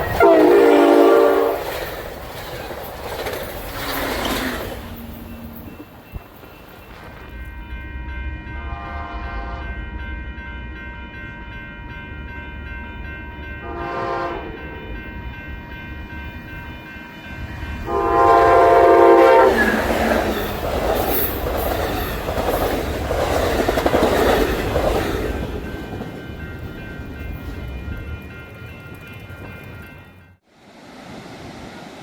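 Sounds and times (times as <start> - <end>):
train horn blasts: 0.0 - 1.8, 7.8 - 9.9, 13.6 - 15.0, 17.8 - 20.0
train wheels clattering on rails: 0.0 - 7.9, 17.8 - 30.4.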